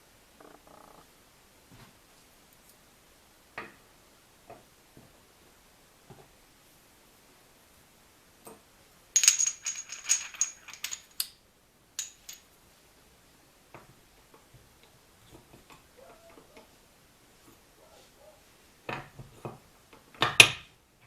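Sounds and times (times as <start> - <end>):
metal parts clinking: 9.2 - 11.3, 12.0 - 12.5.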